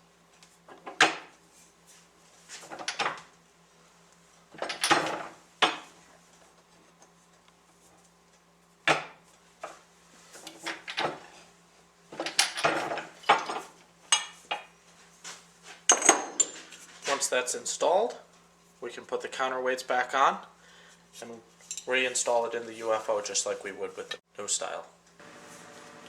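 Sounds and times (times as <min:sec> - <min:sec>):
metal parts clinking and knocking: 0:04.6 - 0:05.2.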